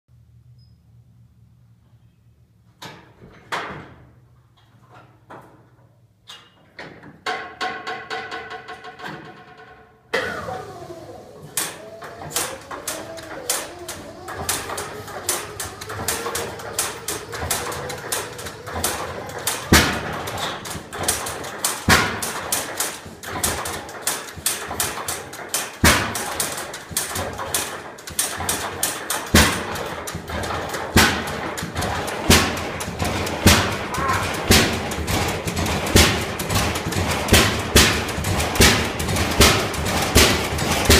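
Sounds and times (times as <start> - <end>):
engine pops: 10.1 - 40.9
tractor engine running: 10.1 - 40.9.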